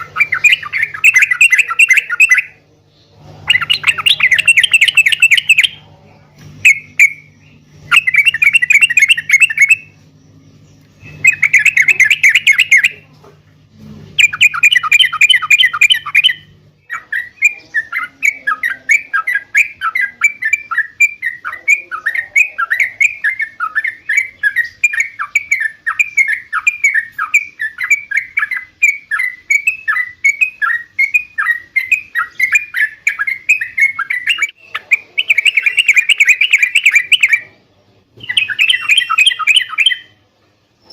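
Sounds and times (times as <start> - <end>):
bird downward-slurred notes: 0.0 - 13.1
bird chattering song: 0.0 - 13.2, 14.2 - 40.2
low steady hum: 0.0 - 40.9.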